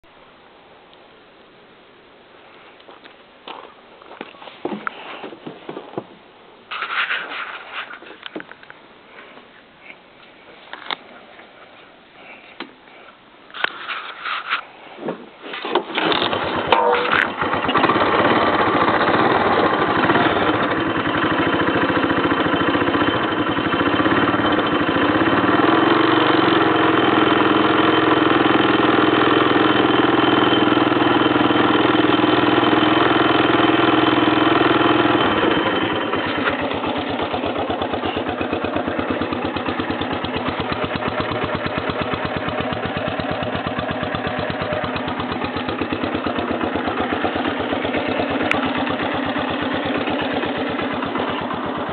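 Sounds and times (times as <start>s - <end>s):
four-stroke engine idling: 16.0s - 51.9s.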